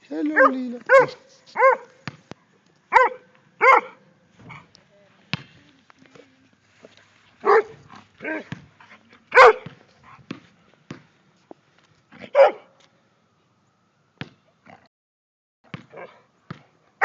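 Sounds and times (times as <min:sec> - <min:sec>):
small dog barking: 0:00.4 - 0:02.0, 0:02.9 - 0:04.7, 0:07.4 - 0:08.6, 0:09.3 - 0:09.8, 0:12.3 - 0:12.7.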